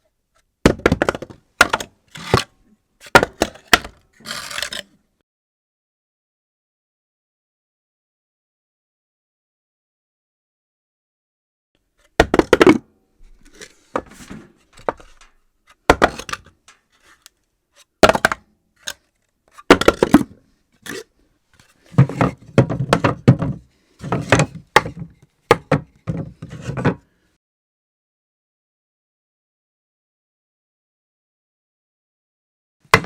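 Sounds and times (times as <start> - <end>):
objects bouncing and clattering: 12.2 - 17.2.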